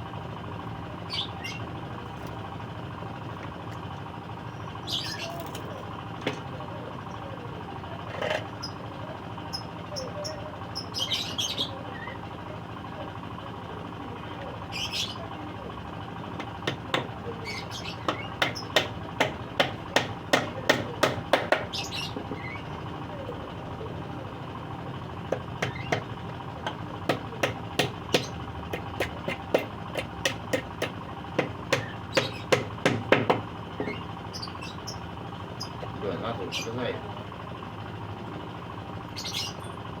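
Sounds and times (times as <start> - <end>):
small birds chirping: 0.9 - 1.8, 4.4 - 12.5, 14.1 - 15.7, 16.3 - 24.4, 25.2 - 37.3, 39.0 - 40.0
hammer striking wood: 16.4 - 17.2, 18.1 - 21.8, 25.3 - 34.0.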